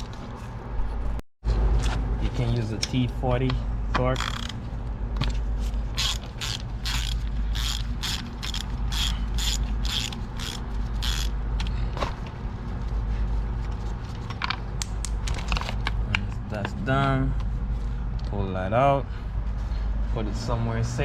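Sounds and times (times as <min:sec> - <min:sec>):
steady low hum: 0:00.0 - 0:21.0
ratchet wrench clicking: 0:04.2 - 0:04.6, 0:06.0 - 0:11.3.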